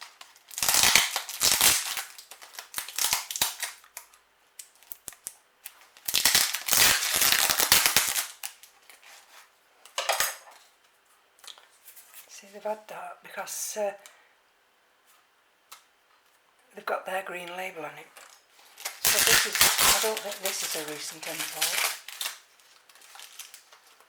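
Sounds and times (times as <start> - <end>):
packaging crackling and crinkling: 0.0 - 9.5, 18.2 - 24.0.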